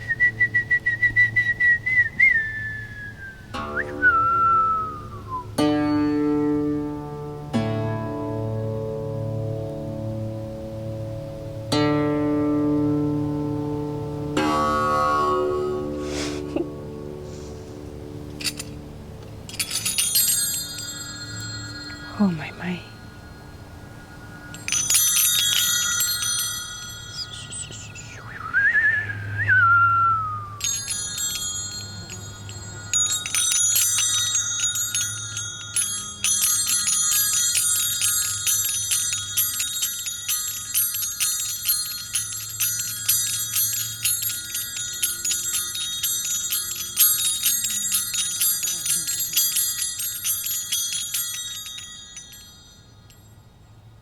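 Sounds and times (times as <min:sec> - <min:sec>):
metal chimes jingling: 0:17.2 - 0:28.5, 0:30.2 - 0:54.0
whistling glide falling in pitch: 0:26.6 - 0:30.6.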